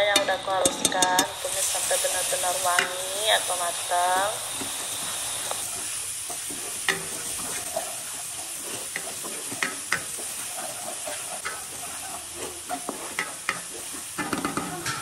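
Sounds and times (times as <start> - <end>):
garlic sizzling in hot oil: 0.0 - 15.0
wooden spoon scraping a pan: 4.5 - 15.0.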